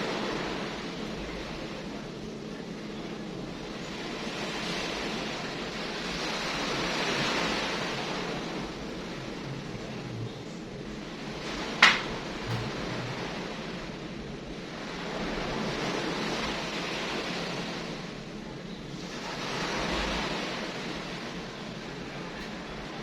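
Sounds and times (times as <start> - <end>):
surf washing onto shore: 11.1 - 18.2
sharp click: 11.8 - 12.8.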